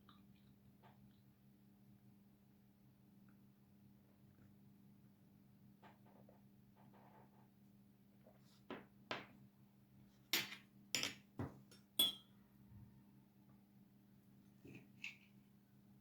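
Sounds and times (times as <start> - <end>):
crockery knocking and clinking: 10.4 - 12.3.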